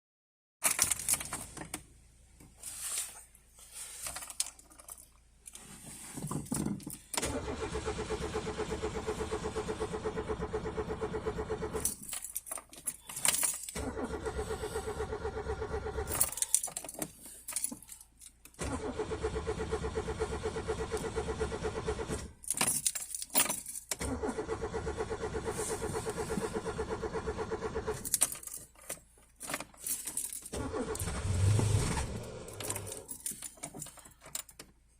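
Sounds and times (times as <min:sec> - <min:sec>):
car engine cranking on starter: 0:07.2 - 0:11.8, 0:13.8 - 0:16.2, 0:18.6 - 0:22.4, 0:24.0 - 0:28.1, 0:30.5 - 0:33.1
keys jangling: 0:11.8 - 0:13.8, 0:16.1 - 0:18.4, 0:22.4 - 0:24.0, 0:28.0 - 0:30.6, 0:32.5 - 0:34.6.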